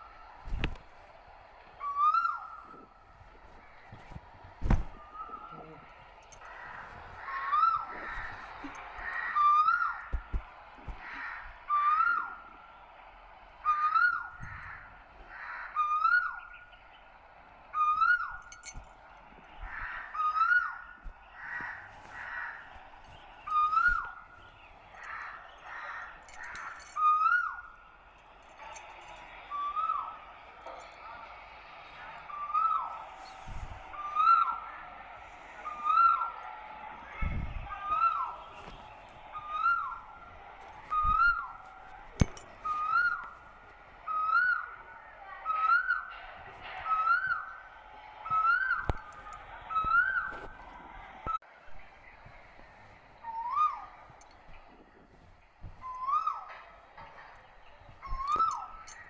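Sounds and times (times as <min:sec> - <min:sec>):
loud rising and falling bird call: 0:01.8 - 0:03.0, 0:06.5 - 0:18.4, 0:19.6 - 0:26.2, 0:31.4 - 0:34.8, 0:35.4 - 0:37.0, 0:37.7 - 0:41.7, 0:44.0 - 0:46.2
faint rough bird calls: 0:19.5 - 0:27.7
bird whistling call: 0:40.9 - 0:41.6.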